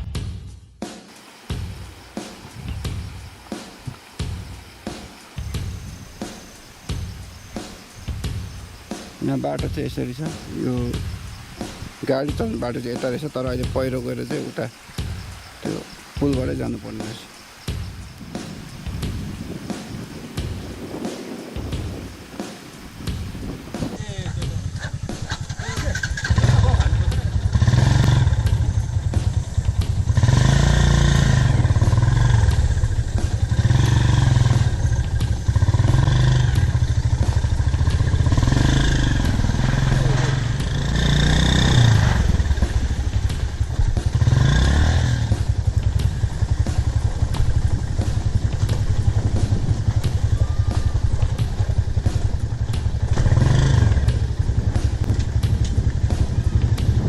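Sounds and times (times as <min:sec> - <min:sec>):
motorcycle engine revving: 0:23.1 - 0:57.0.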